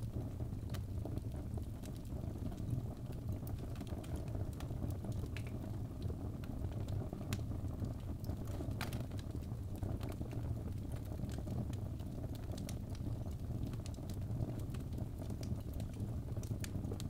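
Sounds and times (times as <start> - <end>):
flames rumbling: 0.0 - 17.0
logs crackling and popping: 0.0 - 17.0.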